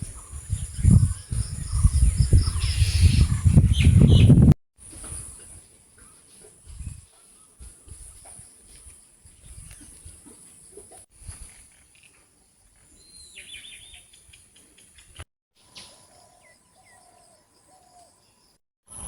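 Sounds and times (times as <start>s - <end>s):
low rumbling on microphone: 0.0s - 4.6s
short whistled bird calls: 13.0s - 17.2s.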